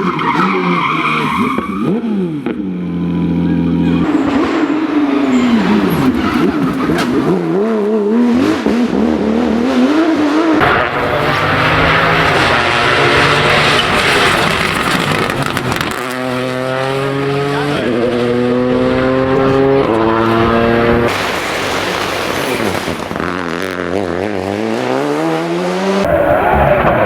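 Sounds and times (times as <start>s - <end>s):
rally car engine: 0.0s - 27.0s
loud rushing noise: 20.3s - 23.6s.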